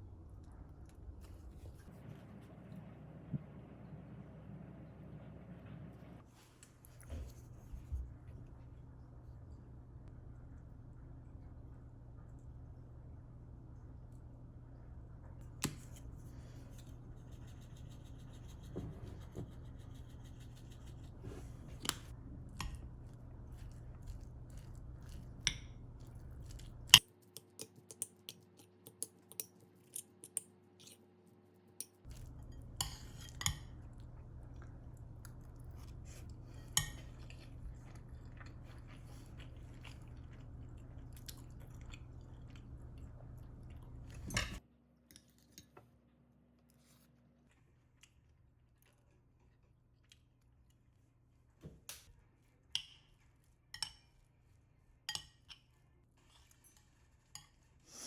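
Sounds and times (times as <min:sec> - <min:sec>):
steady low hum: 0:00.0 - 0:27.0, 0:32.1 - 0:44.6.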